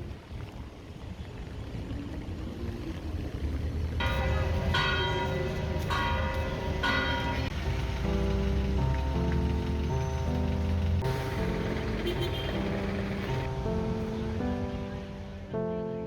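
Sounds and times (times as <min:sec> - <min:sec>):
low outdoor rumble: 0:00.0 - 0:16.0
bells ringing: 0:04.0 - 0:14.6
steady pitched music tones: 0:04.1 - 0:16.0.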